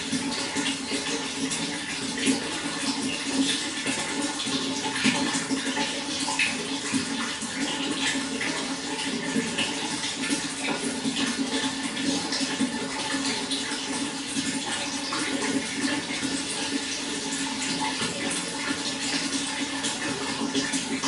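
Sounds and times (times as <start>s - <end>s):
running water burbling: 0.0s - 21.0s.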